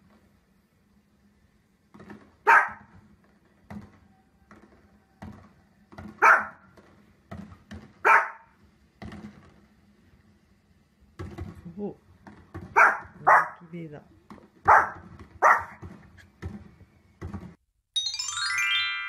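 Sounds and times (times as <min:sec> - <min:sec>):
small dog barking: 0:02.4 - 0:02.9, 0:06.2 - 0:06.6, 0:08.0 - 0:08.5, 0:12.7 - 0:13.6, 0:14.6 - 0:15.8.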